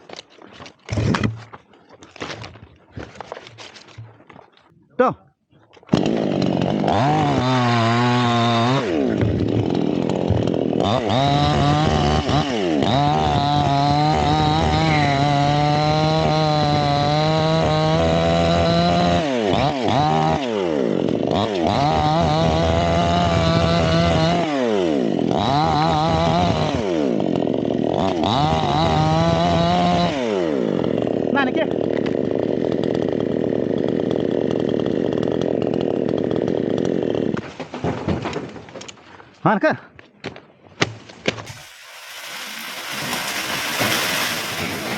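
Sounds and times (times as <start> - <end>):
chainsaw revving while cutting: 5.9 - 37.4, 41.5 - 44.9.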